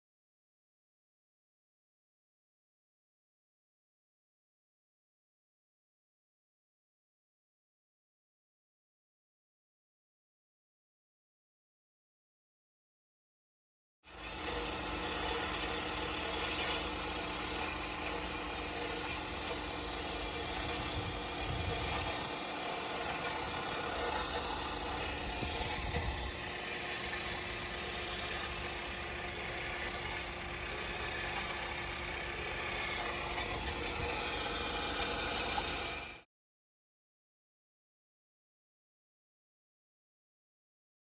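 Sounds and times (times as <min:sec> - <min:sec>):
short high squeaks: 0:14.1 - 0:35.9.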